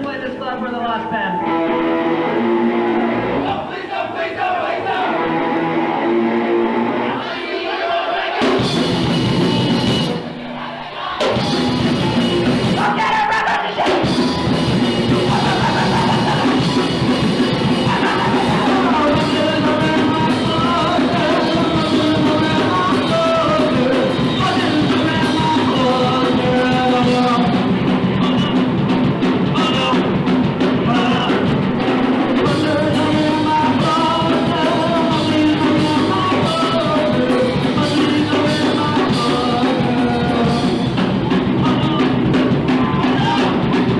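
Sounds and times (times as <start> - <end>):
punk rock band playing: 0.0 - 43.9
person singing: 10.6 - 28.8, 29.4 - 43.9.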